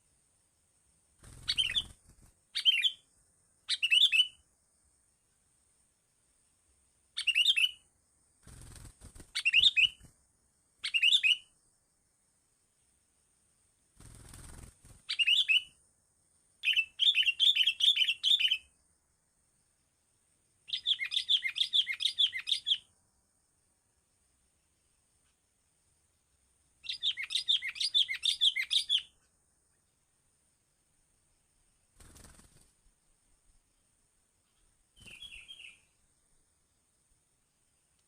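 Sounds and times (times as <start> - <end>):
small bird chirping: 1.2 - 4.5, 7.1 - 10.2, 10.8 - 12.0, 13.6 - 15.9, 16.5 - 19.0, 20.5 - 23.4, 24.1 - 30.1, 31.2 - 36.8.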